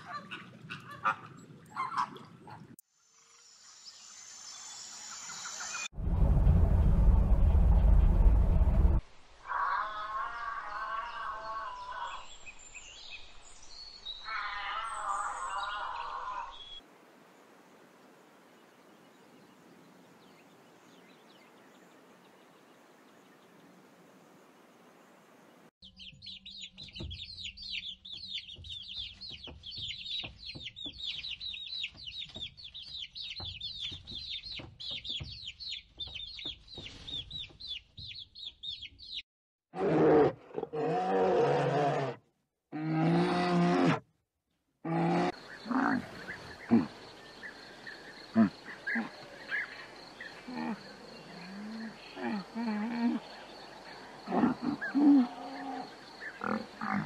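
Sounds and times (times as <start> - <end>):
chicks peeping: 25.9 - 39.2
camel grunting: 54.2 - 57.0.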